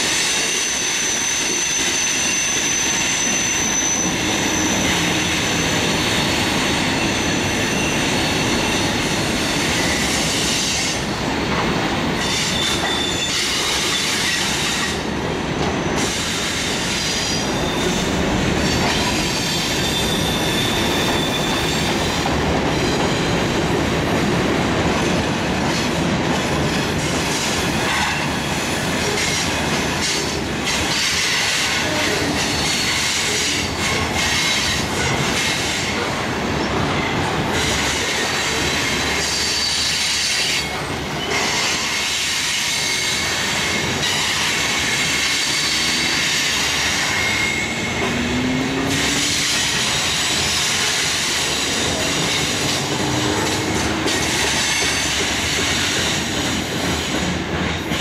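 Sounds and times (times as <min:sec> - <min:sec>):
high wheel squeal: 0:00.0 - 0:11.6, 0:12.2 - 0:15.1, 0:16.0 - 0:23.2, 0:37.0 - 0:57.2
steel wheels running on rails: 0:00.0 - 0:58.0.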